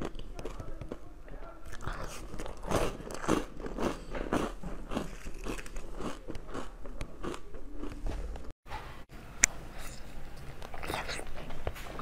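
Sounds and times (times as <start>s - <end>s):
person chewing crunchy food: 1.7s - 8.0s.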